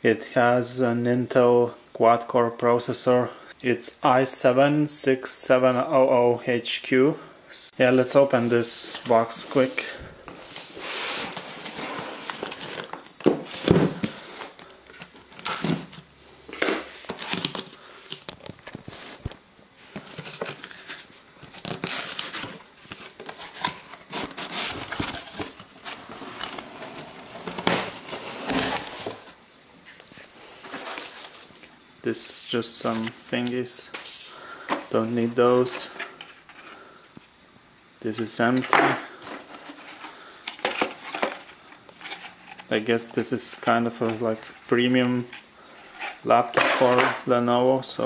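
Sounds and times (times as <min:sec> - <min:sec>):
packaging crinkling and rustling: 0:17.0 - 0:29.4.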